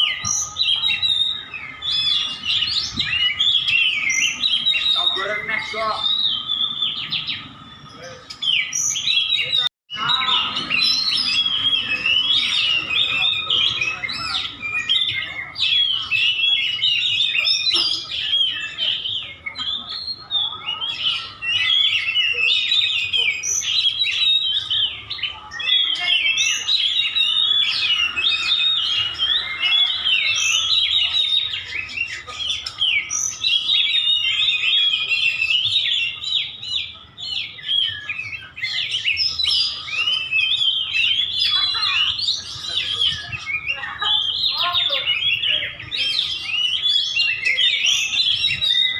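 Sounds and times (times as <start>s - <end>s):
bird singing chirps and whistles: 0.0s - 48.9s.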